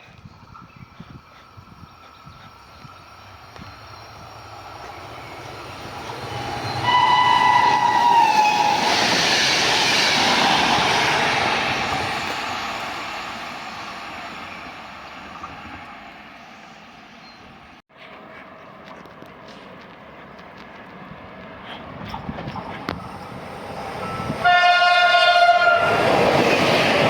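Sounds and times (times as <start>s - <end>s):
rush of passing train: 0.0s - 27.0s
train horn: 6.8s - 8.8s, 24.4s - 26.1s.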